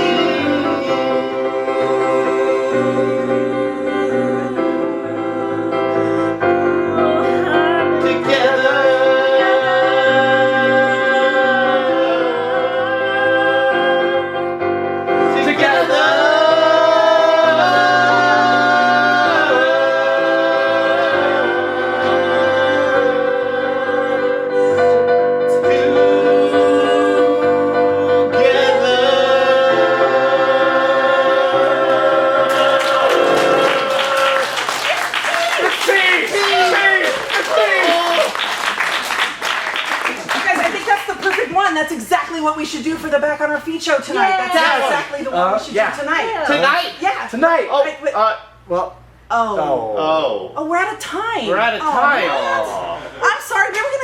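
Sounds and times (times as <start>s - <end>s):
voices singing in harmony: 0.0s - 35.5s
piano chords: 0.0s - 46.4s.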